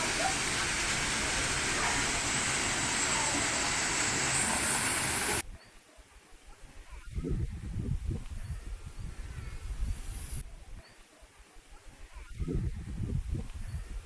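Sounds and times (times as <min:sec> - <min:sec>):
running water: 0:00.0 - 0:05.4.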